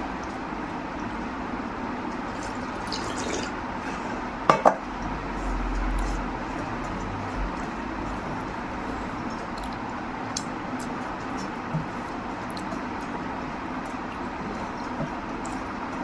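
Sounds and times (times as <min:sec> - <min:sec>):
small eating clicks: 0:05.8 - 0:16.0.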